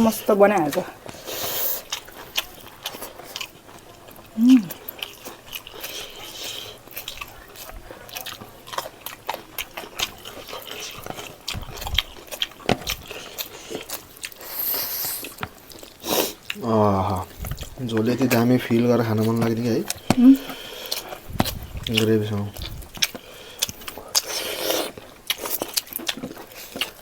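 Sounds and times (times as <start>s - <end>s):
person chewing food: 0.0s - 27.0s
person humming: 4.4s - 4.8s, 20.2s - 20.5s.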